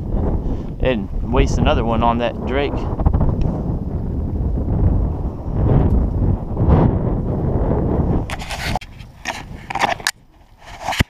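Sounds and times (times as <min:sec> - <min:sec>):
wind buffeting microphone: 0:00.0 - 0:11.0
scraping and rustling: 0:08.2 - 0:11.0.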